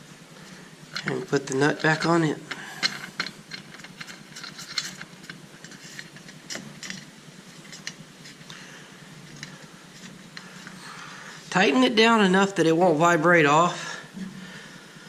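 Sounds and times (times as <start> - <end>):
metal nut clicking and scraping: 0.9 - 8.6, 9.2 - 10.8.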